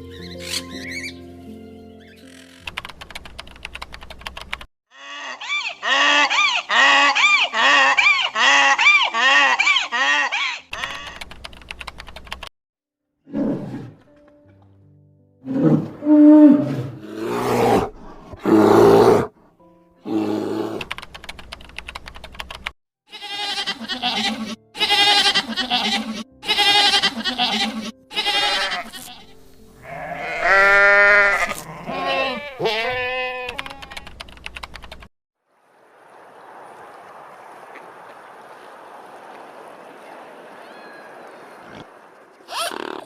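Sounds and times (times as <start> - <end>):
animal bleats: 23.1 - 34.1.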